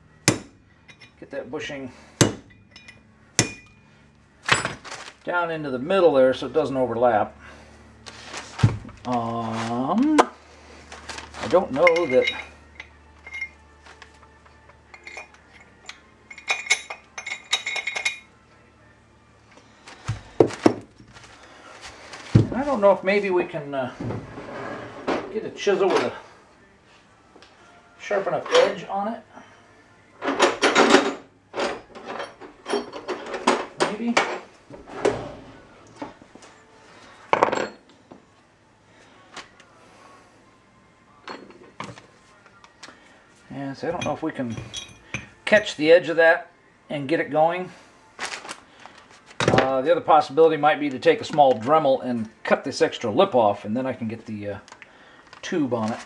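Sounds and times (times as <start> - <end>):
chisel knocking on metal: 0.2 - 1.0
chisel clinking on metal: 0.2 - 1.2, 2.2 - 3.8, 11.8 - 13.8, 14.6 - 18.4, 44.0 - 45.7.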